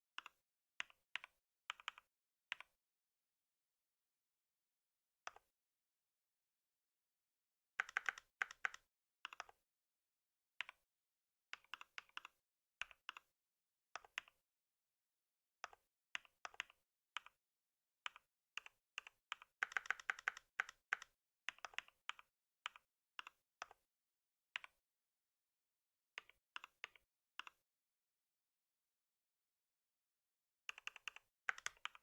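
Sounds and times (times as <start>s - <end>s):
computer keyboard typing: 7.8s - 9.6s, 19.3s - 22.2s, 30.7s - 32.0s.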